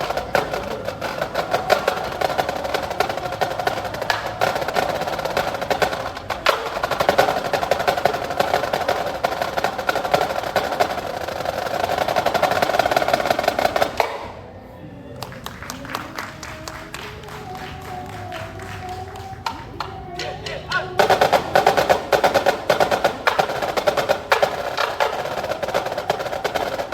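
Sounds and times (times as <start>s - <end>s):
wind instruments holding tone: 0.0s - 26.9s
fast drum strokes: 20.1s - 26.9s.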